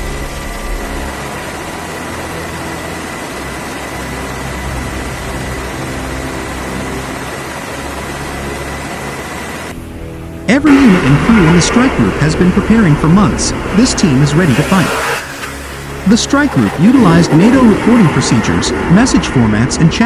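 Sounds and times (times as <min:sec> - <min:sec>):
high steady whine: 0:00.0 - 0:20.0
machine roar: 0:00.0 - 0:20.0.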